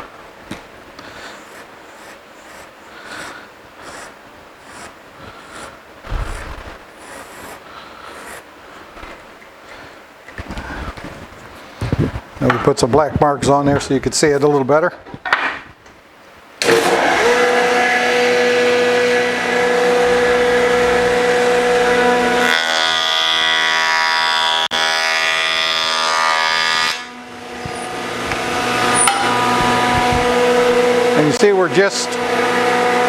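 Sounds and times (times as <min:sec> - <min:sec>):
jointer cutting board: 0:16.6 - 0:31.5
jointer humming: 0:16.6 - 0:33.0.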